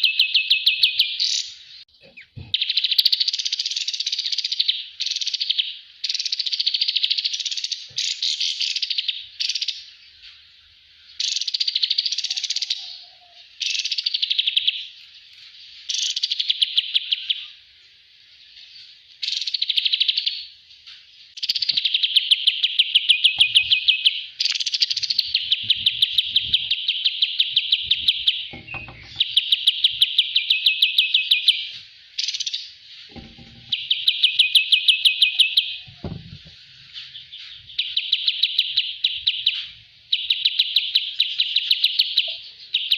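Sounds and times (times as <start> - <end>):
songbird trilling: 0.0 - 9.9, 21.3 - 36.4, 37.0 - 42.9.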